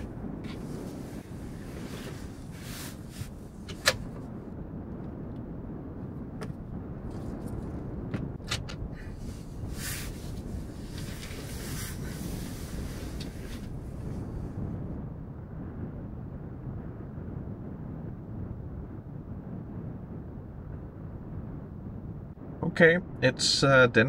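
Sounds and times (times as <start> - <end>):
low rumble: 0.0 - 23.3.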